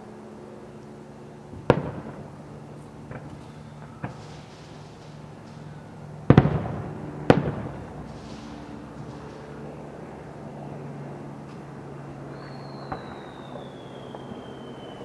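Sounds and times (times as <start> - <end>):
firework shells booming: 1.5 - 10.0, 12.3 - 15.0.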